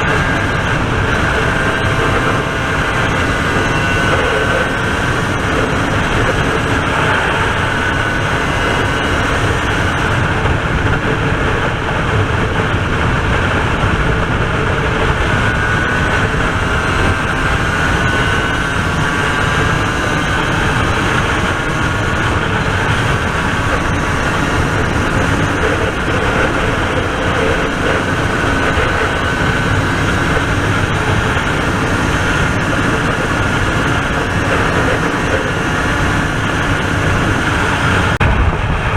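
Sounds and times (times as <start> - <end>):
motorcycle engine running: 0.0 - 38.9
wind rush on microphone: 0.0 - 38.9.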